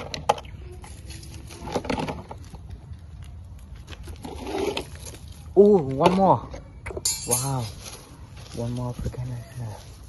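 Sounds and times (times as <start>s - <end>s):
hands rummaging through leaves: 0.7s - 2.7s, 7.3s - 10.0s.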